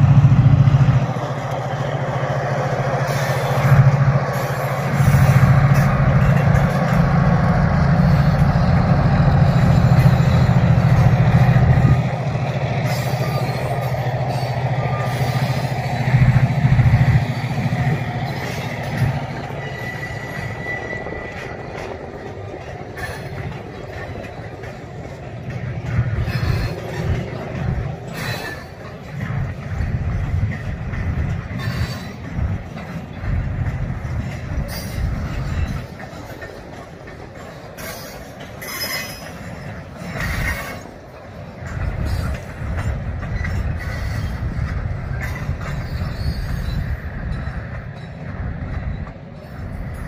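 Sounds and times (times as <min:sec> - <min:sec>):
diesel locomotive engine droning: 0:00.0 - 0:50.0
high squeal: 0:17.2 - 0:21.6, 0:45.7 - 0:47.1.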